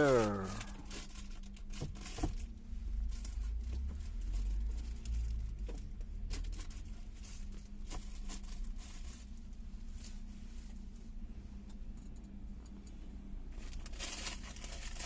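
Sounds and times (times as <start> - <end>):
diesel truck engine rumble: 0.0 - 1.2
steady hum: 6.8 - 15.0.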